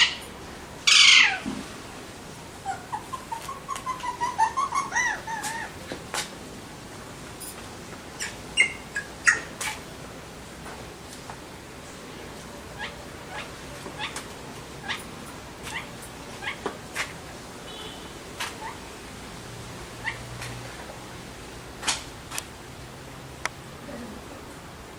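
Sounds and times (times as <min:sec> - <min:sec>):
parakeets chirping and squawking: 0:00.0 - 0:01.4, 0:02.6 - 0:05.8, 0:08.2 - 0:09.8, 0:12.7 - 0:14.2, 0:14.8 - 0:16.7, 0:20.0 - 0:20.3.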